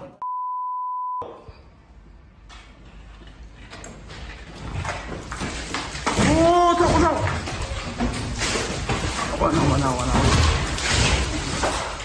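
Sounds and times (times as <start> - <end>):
censor bleep: 0.2 - 1.3.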